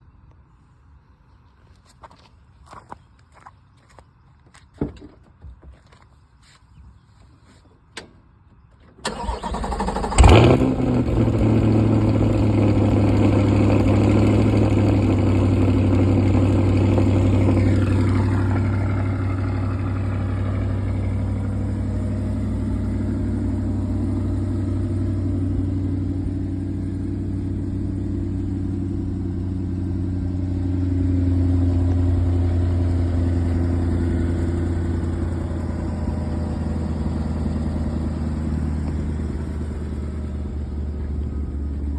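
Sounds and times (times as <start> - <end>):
car engine starting and idling: 8.8 - 41.9
car starter cranking: 9.0 - 10.7.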